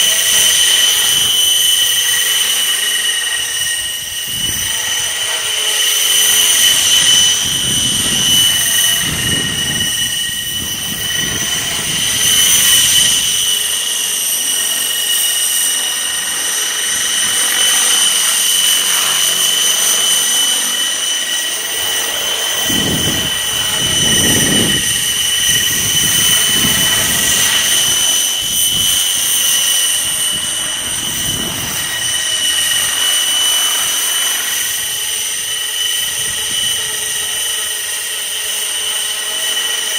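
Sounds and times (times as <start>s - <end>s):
model helicopter rotor whine: 0.0s - 39.9s
wind buffeting microphone: 3.4s - 13.8s, 21.7s - 37.6s.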